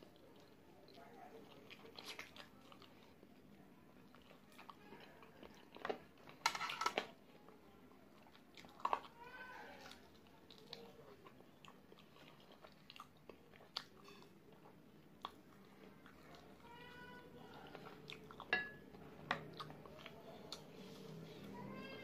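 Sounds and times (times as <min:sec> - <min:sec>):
wet chewing and finger-licking: 0:00.0 - 0:03.5, 0:09.9 - 0:16.5, 0:17.5 - 0:20.8.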